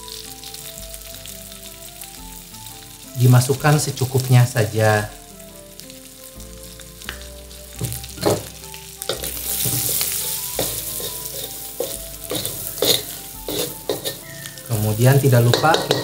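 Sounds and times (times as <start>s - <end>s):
meat sizzling in a wok: 0.0s - 16.0s
wooden spatula scraping a pan: 7.8s - 16.0s.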